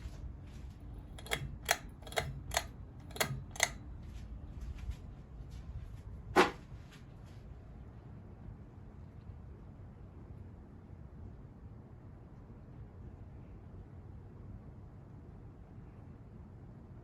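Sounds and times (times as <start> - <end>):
steady low hum: 0.0 - 11.3
sharp mechanical clicks: 1.0 - 3.9.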